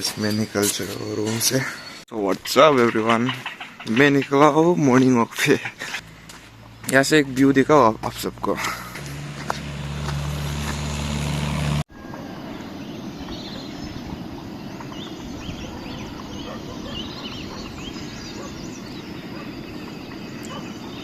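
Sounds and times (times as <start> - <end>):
bird chirps: 0.0 - 6.1, 12.0 - 21.0
outdoor background rush: 0.0 - 21.0.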